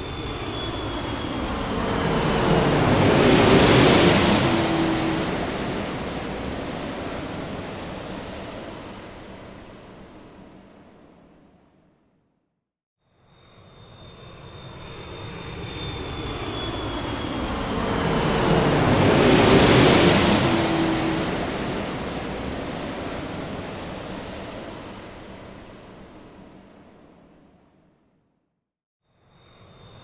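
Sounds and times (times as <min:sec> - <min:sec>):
high engine whine: 0:00.0 - 0:08.8, 0:14.4 - 0:24.8
airplane passing overhead: 0:00.0 - 0:11.1, 0:13.4 - 0:27.5.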